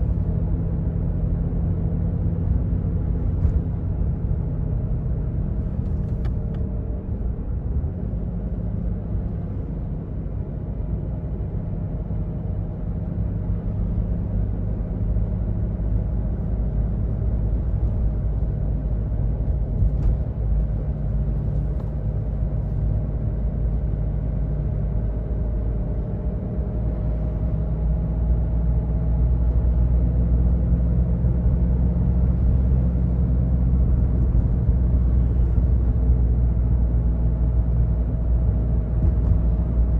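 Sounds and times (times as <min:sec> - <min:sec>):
car engine drone: 0:00.0 - 0:39.9
tyre and road noise: 0:14.6 - 0:39.9.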